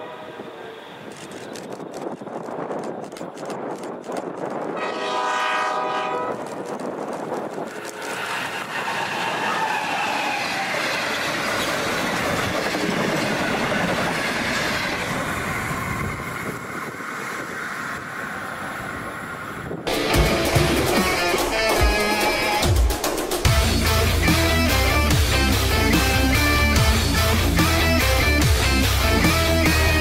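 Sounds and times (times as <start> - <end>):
locomotive horn: 0.0 - 1.0, 4.8 - 6.5
train wheels rushing on rails: 0.0 - 30.0.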